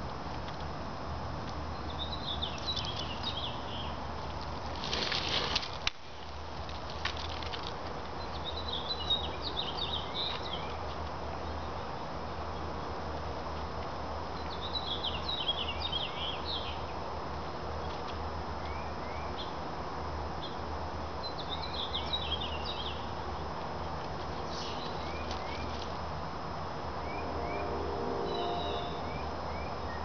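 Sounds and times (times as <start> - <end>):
steady background hum: 0.0 - 30.0
small songbirds twittering: 1.6 - 4.0, 8.1 - 13.0, 14.3 - 17.0, 17.8 - 19.7, 20.4 - 26.0, 27.0 - 30.0.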